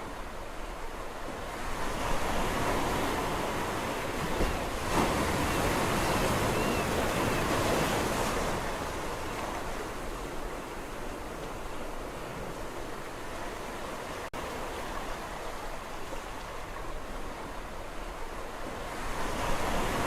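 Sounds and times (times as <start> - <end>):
sea waves breaking: 0.0 - 20.0.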